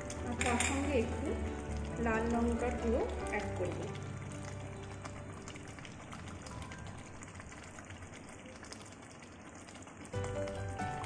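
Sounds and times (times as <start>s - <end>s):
background music: 0.0s - 7.7s, 10.2s - 11.0s.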